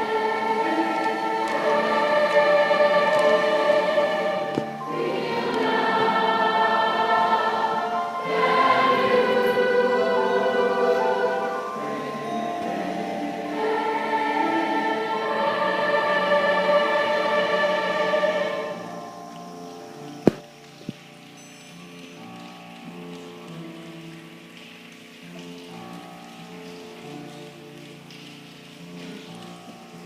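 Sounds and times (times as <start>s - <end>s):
choir singing held chords: 0.0s - 20.4s.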